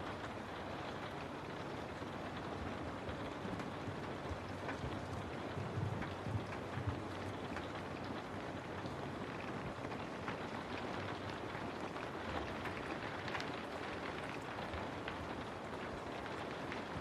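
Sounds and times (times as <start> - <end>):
raindrop hits: 2.8 - 17.0.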